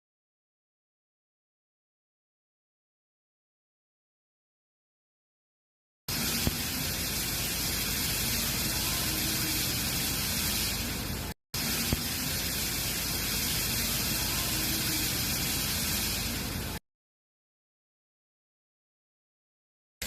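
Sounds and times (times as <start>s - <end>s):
cooling water rushing through pipes: 6.1s - 16.8s.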